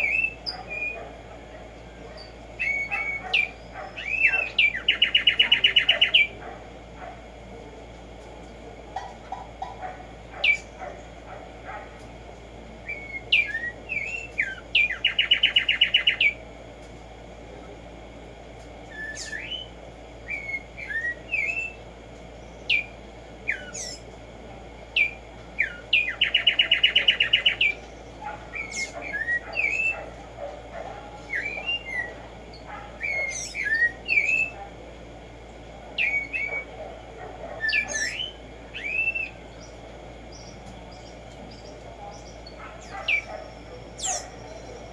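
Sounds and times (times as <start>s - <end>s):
sparrow fast trill: 2.2s - 6.4s, 12.9s - 16.4s, 22.4s - 24.1s, 25.0s - 30.1s, 31.3s - 34.6s, 37.6s - 44.9s.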